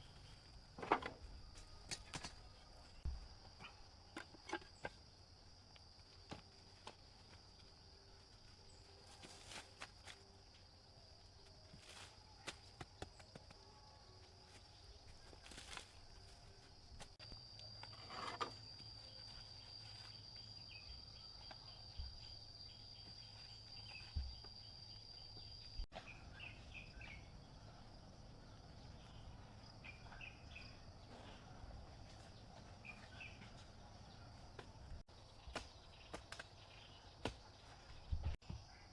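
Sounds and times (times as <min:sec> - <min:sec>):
insect trill: 0:01.4 - 0:31.1.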